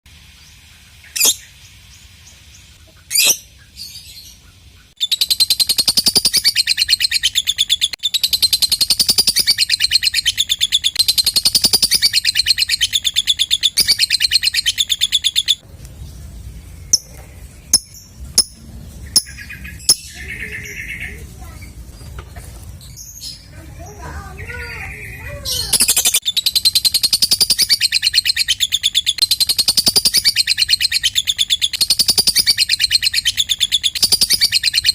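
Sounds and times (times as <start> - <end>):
lovebird sharp calls: 4.9 - 15.6, 24.5 - 34.9.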